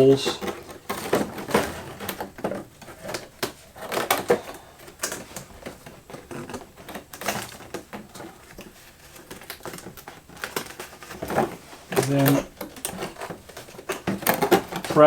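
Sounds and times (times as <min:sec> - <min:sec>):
cardboard taps scrapes and rustles: 0:00.0 - 0:15.0.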